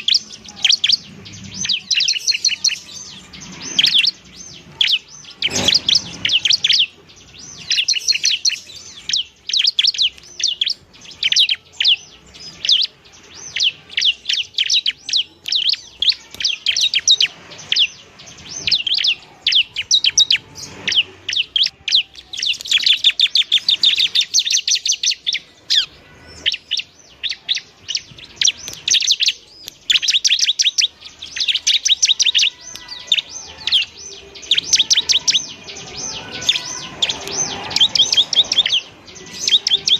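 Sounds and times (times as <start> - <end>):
bird rapid chirping: 0.0 - 39.9.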